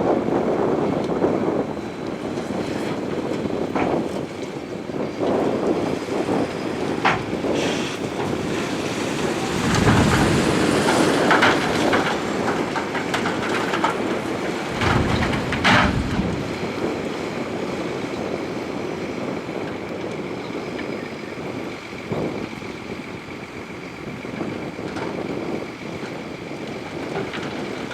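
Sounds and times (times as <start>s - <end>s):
diesel engine running: 0.1s - 27.9s
clanking tracks: 0.2s - 21.0s
rock and gravel grinding: 7.0s - 16.8s.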